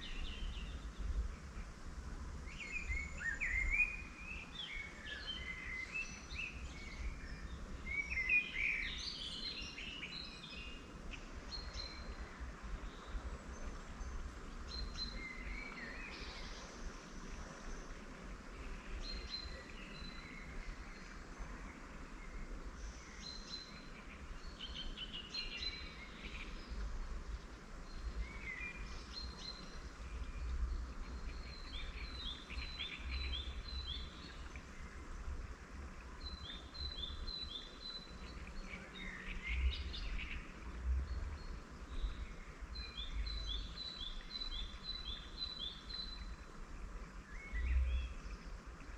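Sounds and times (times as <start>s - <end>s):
wild birds singing and calling: 2.4s - 48.9s.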